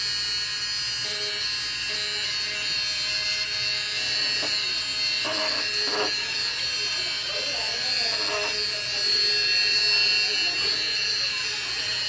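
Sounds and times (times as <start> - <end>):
small motor buzzing whine: 0.0 - 12.0.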